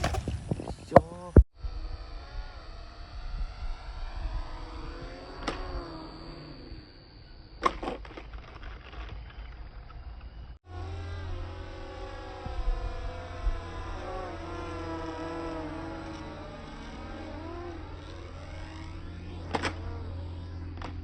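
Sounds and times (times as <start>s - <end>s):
rc plane motors whining: 0.0s - 21.0s
wind noise: 0.0s - 21.0s
sharp clicks: 5.0s - 6.2s, 11.9s - 21.0s.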